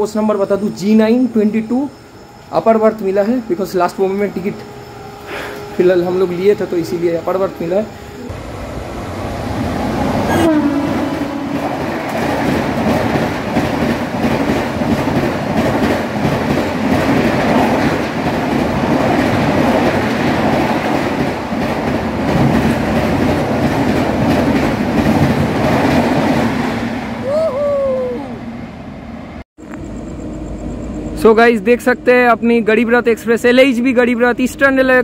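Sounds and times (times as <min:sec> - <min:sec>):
train wheels rushing on rail: 0:00.0 - 0:27.2.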